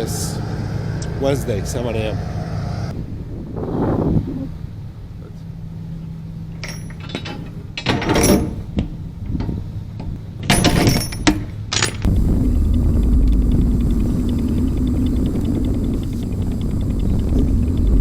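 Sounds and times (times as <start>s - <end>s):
diesel truck engine rumbling: 0.0s - 10.5s, 11.5s - 18.0s
clattering knocks and rattles: 6.5s - 18.0s.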